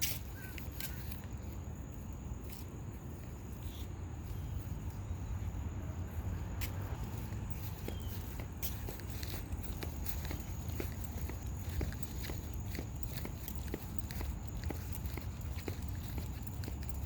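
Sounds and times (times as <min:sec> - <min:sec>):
high insect trill: 0:00.0 - 0:17.0.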